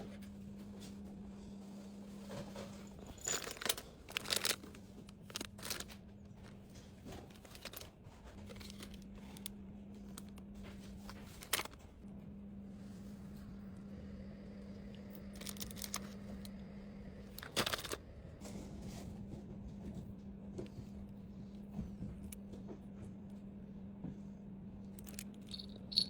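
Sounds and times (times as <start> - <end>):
steady low hum: 0.0 - 26.0
packaging crinkling and rustling: 3.2 - 11.9, 17.3 - 18.0.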